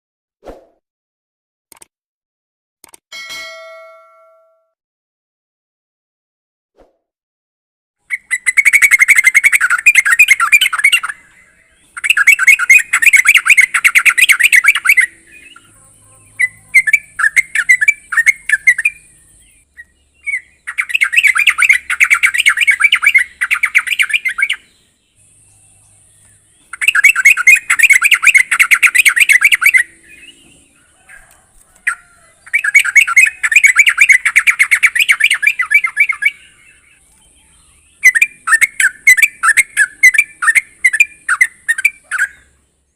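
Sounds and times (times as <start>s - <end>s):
bird chattering song: 8.0s - 42.9s.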